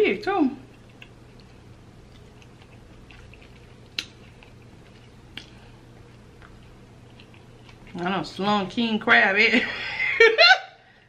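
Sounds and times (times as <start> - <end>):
low steady hum: 0.0 - 11.0
wet mouth clicks chewing: 0.7 - 8.0.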